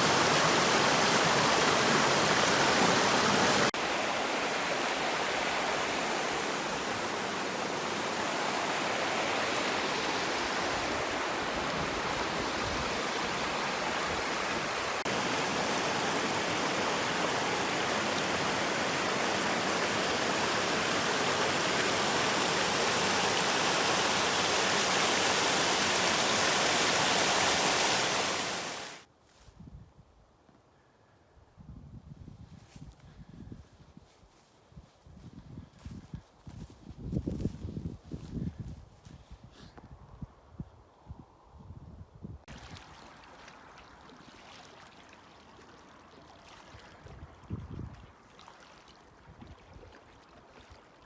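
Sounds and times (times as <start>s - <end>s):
fast-flowing stream water: 0.0s - 29.1s.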